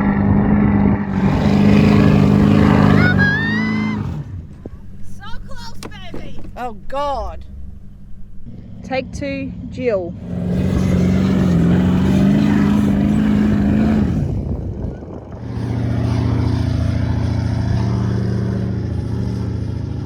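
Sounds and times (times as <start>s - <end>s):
engine running hard under load: 1.0s - 20.0s
low steady engine note: 1.0s - 20.0s.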